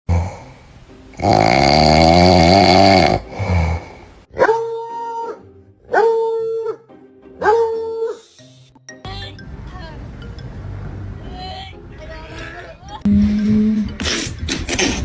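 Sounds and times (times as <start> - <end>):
dog howling: 4.4 - 6.8, 7.4 - 8.2.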